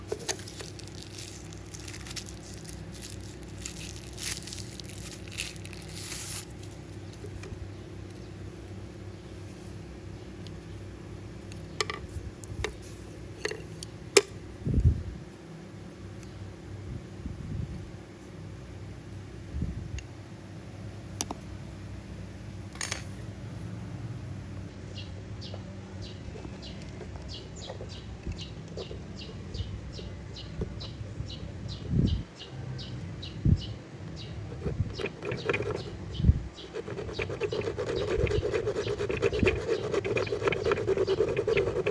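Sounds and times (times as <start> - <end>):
rustling and crackling: 0.0 - 14.0
steady low hum: 0.0 - 25.3
short hissy bursts: 5.9 - 6.8.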